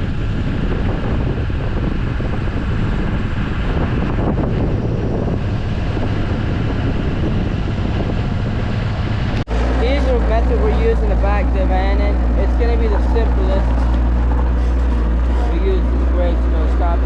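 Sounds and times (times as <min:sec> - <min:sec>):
vehicle driving rumble: 0:00.0 - 0:17.0
wind buffeting microphone: 0:00.0 - 0:17.0.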